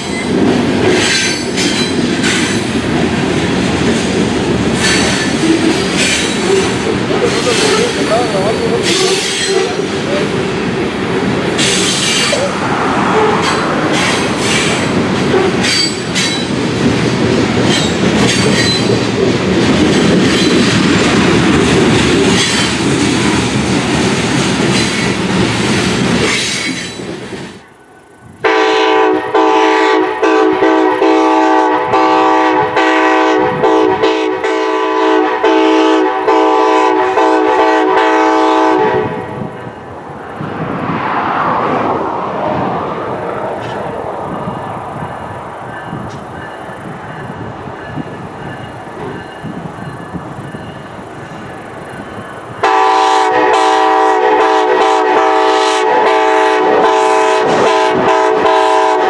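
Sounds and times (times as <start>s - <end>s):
freight train wheels clattering: 0.0s - 38.4s, 42.5s - 59.0s
locomotive air horn blast: 28.4s - 39.3s, 52.6s - 59.0s.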